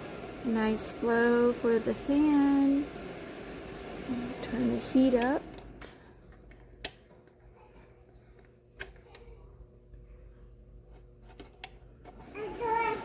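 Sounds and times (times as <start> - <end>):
faint fan hum: 0.0 - 13.0
heater button clicks: 3.0 - 7.0.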